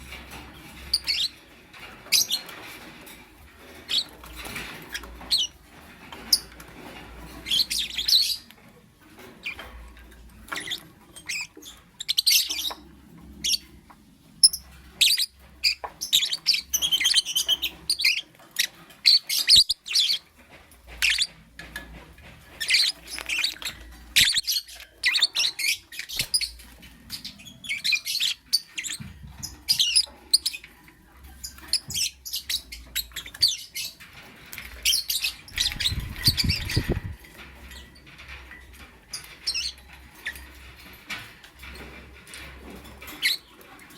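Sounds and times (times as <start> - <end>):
lovebird chirping: 22.6 - 30.6.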